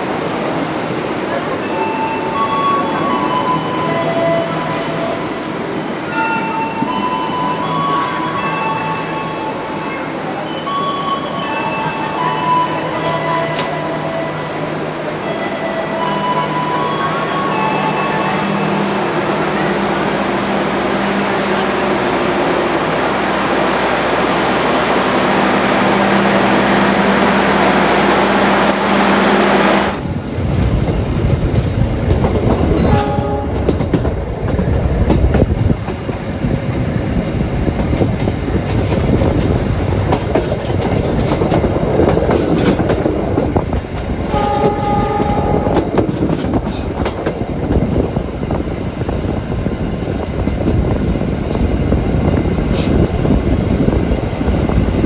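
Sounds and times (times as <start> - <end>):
train clattering on rails: 29.6 - 55.0
train horn blast: 32.8 - 33.8, 44.3 - 45.9.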